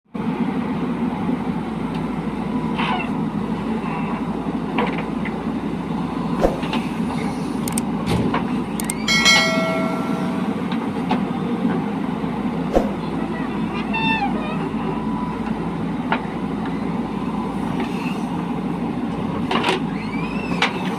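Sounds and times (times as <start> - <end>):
heavy diesel machinery running: 0.1 - 20.9
sharp metallic knocks: 8.8 - 10.8
high tone with overtones: 9.0 - 10.9.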